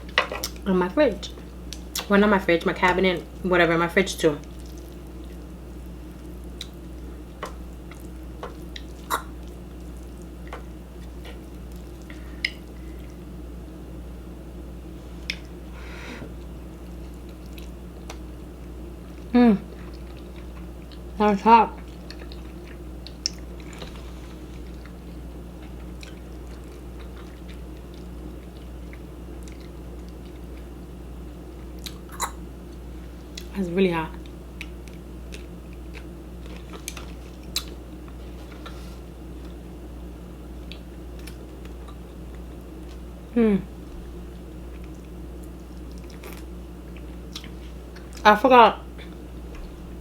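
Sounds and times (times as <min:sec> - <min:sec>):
steady low hum: 0:00.0 - 0:50.0
person chewing noodles: 0:04.4 - 0:07.1, 0:07.7 - 0:13.2, 0:16.4 - 0:21.0, 0:21.8 - 0:30.8, 0:34.6 - 0:39.6, 0:44.6 - 0:48.2.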